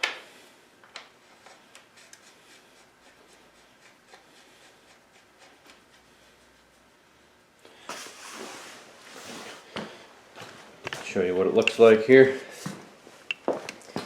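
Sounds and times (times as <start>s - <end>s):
light rubbing of small parts: 0.9s - 7.1s.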